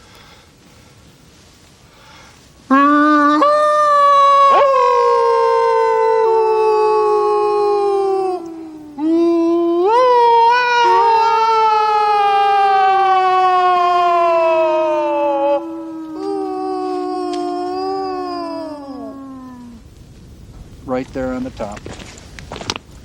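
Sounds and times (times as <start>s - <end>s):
men howling like wolves: 2.7s - 19.8s.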